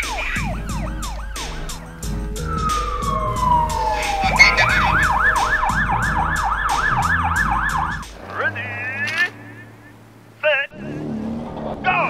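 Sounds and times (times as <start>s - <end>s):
background music with steady beat: 0.0s - 8.2s
emergency siren wailing: 0.0s - 10.1s.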